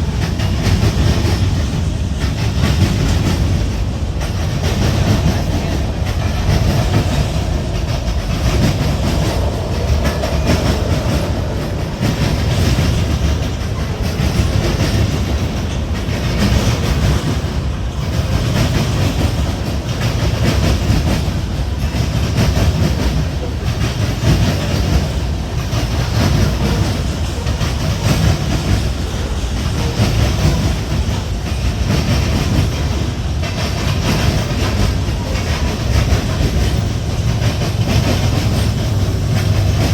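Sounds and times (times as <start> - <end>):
freight train cars rumbling: 0.0 - 39.9
wheels clacking over rail joints: 0.0 - 39.9.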